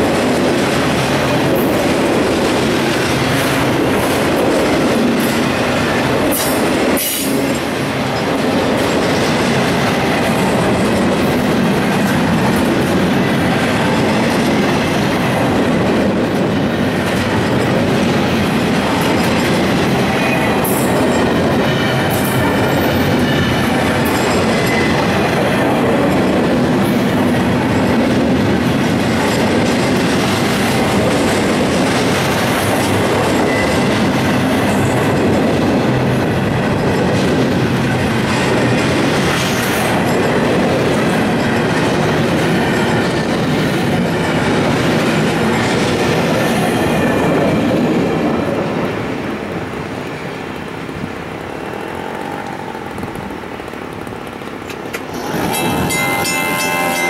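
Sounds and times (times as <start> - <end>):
clickety-clack over rail joints: 0.0 - 57.0
freight train wheels rumbling on rail: 0.0 - 57.0.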